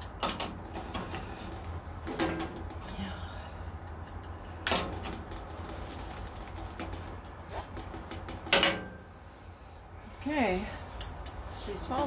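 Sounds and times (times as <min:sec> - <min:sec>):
wrench clanking on metal: 0:02.0 - 0:05.6, 0:06.7 - 0:09.1.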